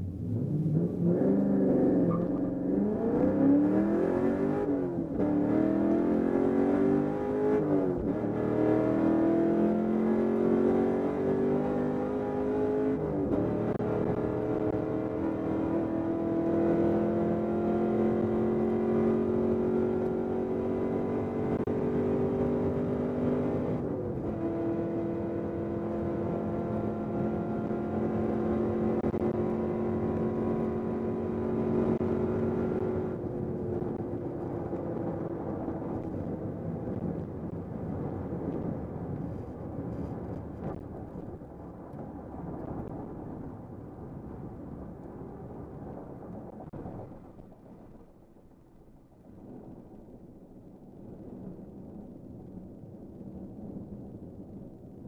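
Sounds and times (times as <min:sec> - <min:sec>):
car engine under full throttle: 0:00.0 - 0:43.4
wind noise: 0:00.0 - 0:55.0.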